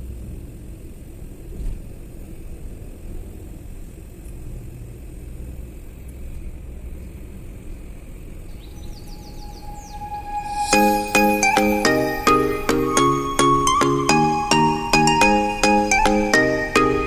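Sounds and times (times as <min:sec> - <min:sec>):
high chirps: 0:08.6 - 0:17.0
music with chiming notes: 0:09.2 - 0:17.0.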